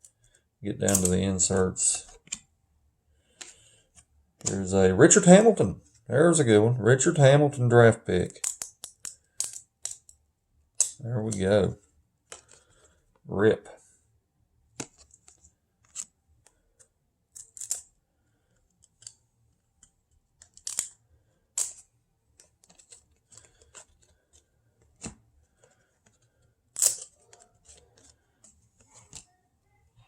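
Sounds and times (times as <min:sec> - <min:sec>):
cards being flipped through: 0:00.8 - 0:02.4, 0:03.2 - 0:05.5, 0:14.7 - 0:17.9, 0:21.6 - 0:29.4.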